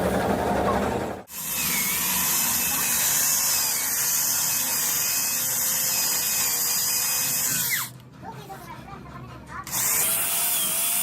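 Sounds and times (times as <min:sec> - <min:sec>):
power tool running: 0:09.7 - 0:11.0.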